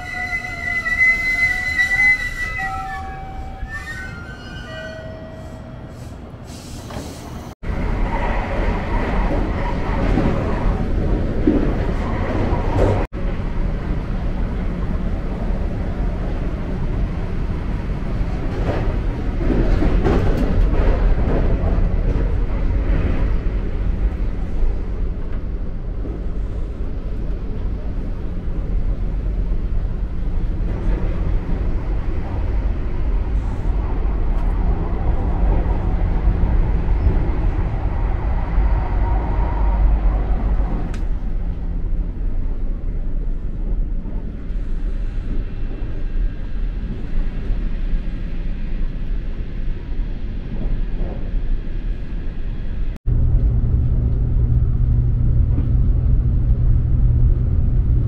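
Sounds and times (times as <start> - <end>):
train running rumble inside car: 6.2 - 58.0
deep steady hum: 53.1 - 58.0.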